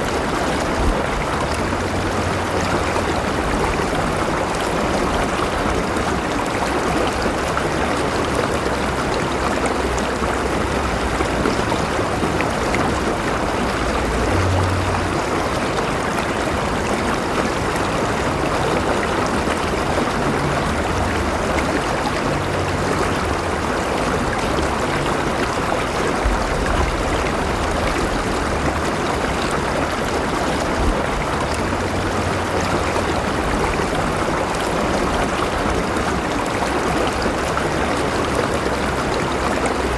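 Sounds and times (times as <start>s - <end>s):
water rushing over stones: 0.0s - 39.9s.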